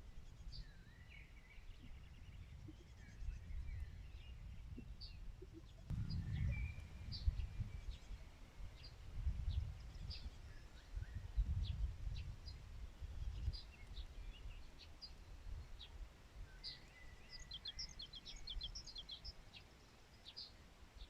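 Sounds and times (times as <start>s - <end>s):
small birds chirping: 0.0s - 21.0s
low rumble: 4.7s - 8.2s.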